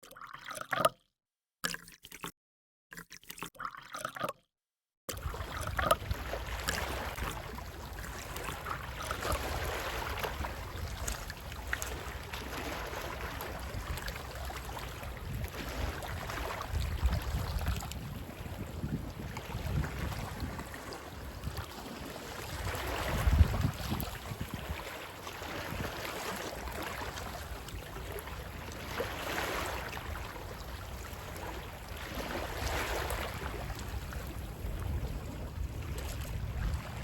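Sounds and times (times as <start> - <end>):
wind: 5.1 - 37.0
sea waves washing: 5.2 - 17.4.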